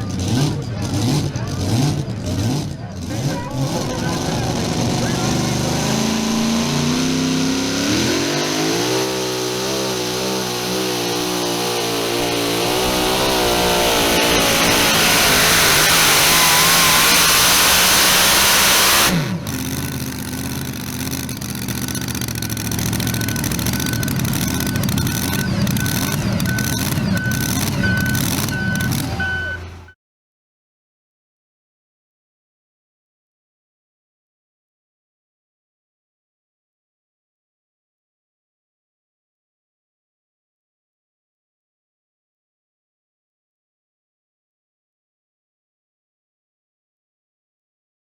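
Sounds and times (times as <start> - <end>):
low engine rumble: 0.0 - 7.8, 10.6 - 29.9
truck engine at full throttle: 0.0 - 29.9
short repeating beeps: 22.8 - 29.7.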